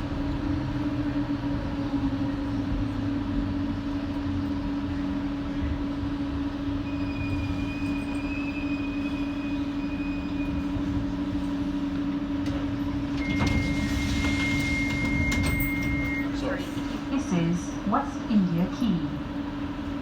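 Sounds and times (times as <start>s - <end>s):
train hum: 0.0s - 20.0s
wheel and track rumble: 0.0s - 20.0s
high steady whistle: 6.8s - 10.6s.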